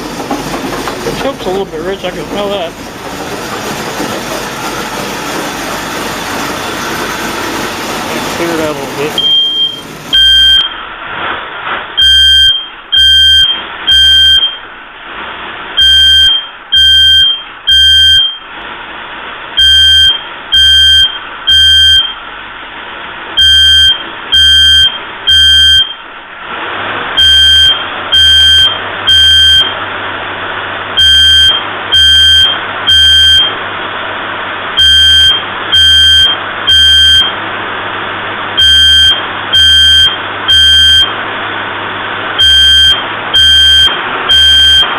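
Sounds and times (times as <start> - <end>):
car engine running: 0.0 - 44.9
smoke alarm beeping: 9.2 - 10.8, 12.0 - 14.6, 15.8 - 18.5, 19.6 - 22.2, 23.4 - 26.0, 27.2 - 29.8, 31.0 - 33.6, 34.8 - 37.4, 38.6 - 41.1, 42.4 - 44.9.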